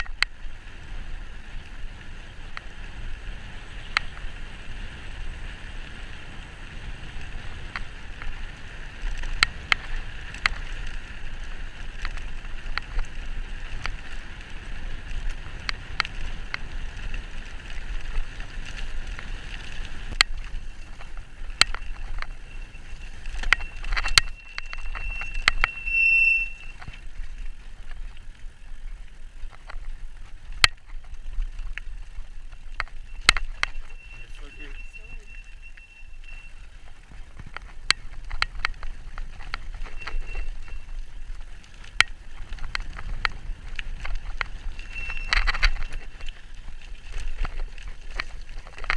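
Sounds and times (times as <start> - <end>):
bike tyres rumbling: 0.0 - 48.9
brief high squeal: 22.5 - 26.8, 33.5 - 36.7, 44.8 - 45.5
clicks and rattles from bumps: 26.7 - 34.2, 36.7 - 48.9.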